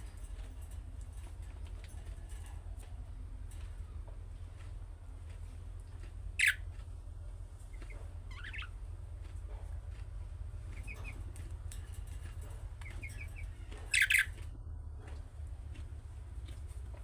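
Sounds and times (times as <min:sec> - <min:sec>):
steady low hum: 0:00.0 - 0:17.0
budgerigar chirping: 0:06.4 - 0:06.6, 0:07.7 - 0:08.8, 0:12.8 - 0:14.4.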